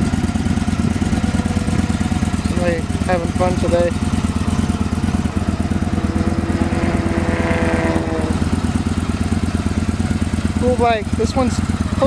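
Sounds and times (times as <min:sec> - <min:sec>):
vehicle passing: 0:00.0 - 0:09.1
motorcycle engine idling: 0:00.0 - 0:12.0.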